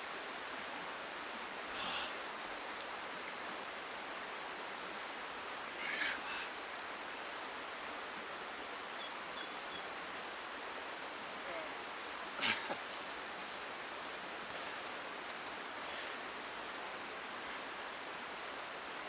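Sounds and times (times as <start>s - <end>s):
river flowing: 0.0s - 19.0s
bird chirping: 8.8s - 9.9s.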